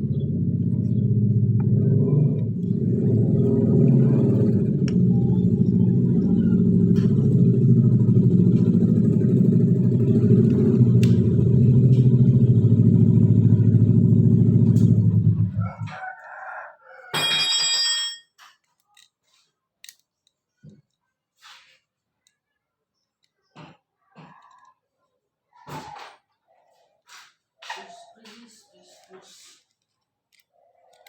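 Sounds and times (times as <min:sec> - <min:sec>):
rooster crowing: 0:15.4 - 0:17.5
small clicks: 0:18.6 - 0:21.1, 0:29.0 - 0:31.0.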